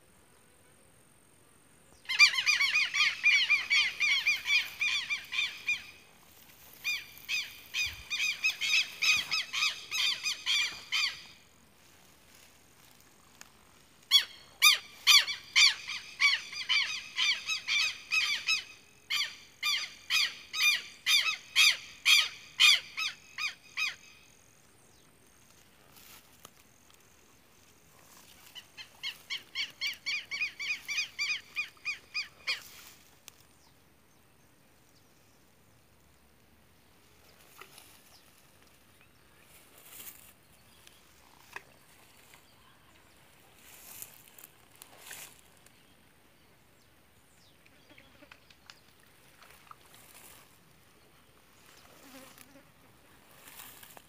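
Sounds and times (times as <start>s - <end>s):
bird calling harsh notes: 2.1s - 6.1s, 6.7s - 11.5s, 14.0s - 24.3s.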